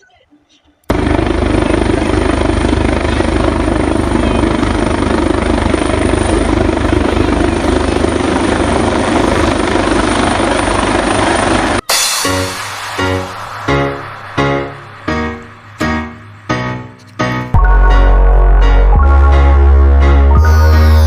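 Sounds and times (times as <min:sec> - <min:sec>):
helicopter rotor and engine: 0:00.9 - 0:12.1.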